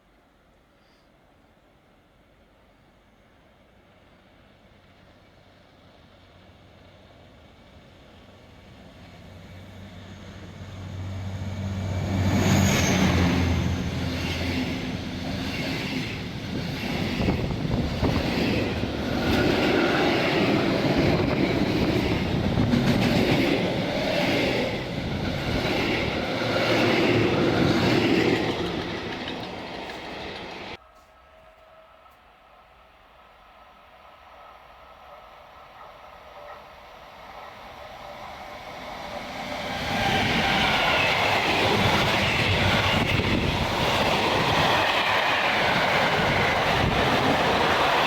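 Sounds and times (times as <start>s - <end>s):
train wheels clickety-clack: 12.2s - 30.8s, 34.3s - 48.0s.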